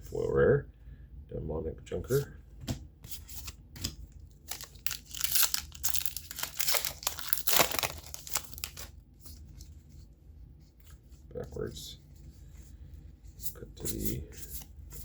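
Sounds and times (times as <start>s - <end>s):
plastic wrapper crinkling and tearing: 4.3s - 8.9s.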